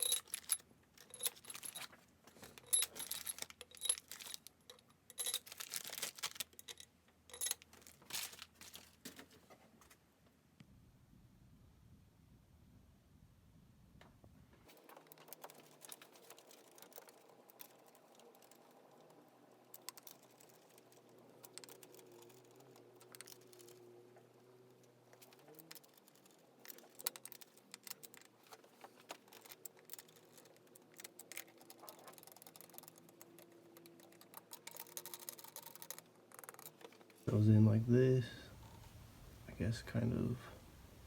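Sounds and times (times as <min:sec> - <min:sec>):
low steady hum: 0:37.0 - 0:41.0.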